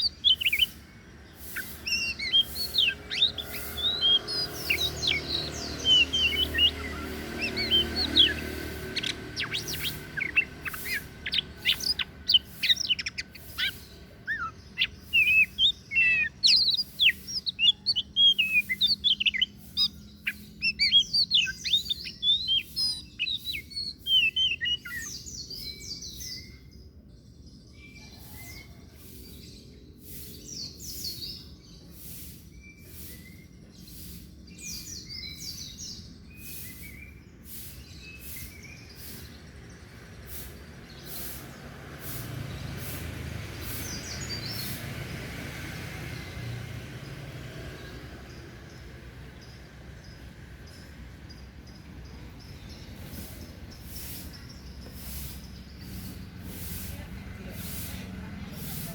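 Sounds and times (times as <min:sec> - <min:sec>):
bird singing whistles and chirps: 0:00.0 - 0:41.7, 0:43.8 - 0:44.9.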